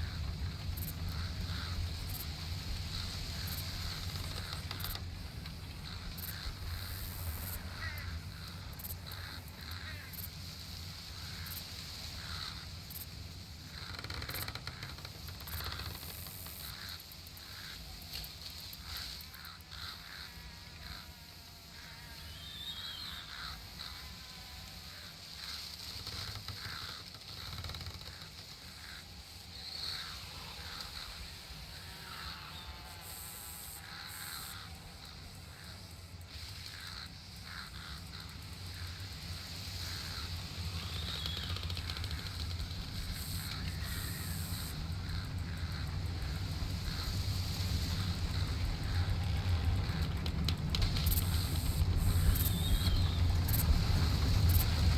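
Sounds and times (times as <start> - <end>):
low background rumble: 0.0 - 18.1, 28.1 - 54.9
faint bird chirps: 21.9 - 24.6, 39.8 - 50.0, 51.0 - 54.0
birds chirping: 28.1 - 54.9
low rumble: 41.8 - 54.9.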